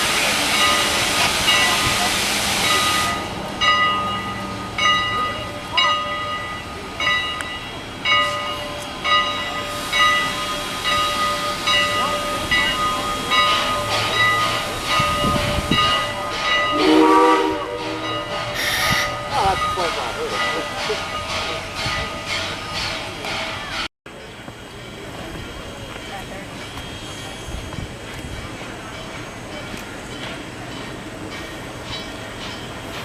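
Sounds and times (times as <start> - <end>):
loud hiss of steam: 0.0 - 3.6, 9.3 - 23.2
locomotive bell ringing: 0.3 - 33.0.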